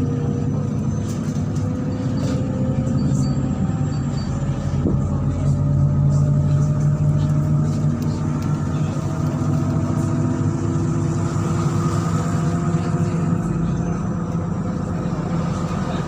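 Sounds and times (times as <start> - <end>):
bus engine drone inside cabin: 0.0 - 16.0
whining drivetrain tones: 0.0 - 16.0.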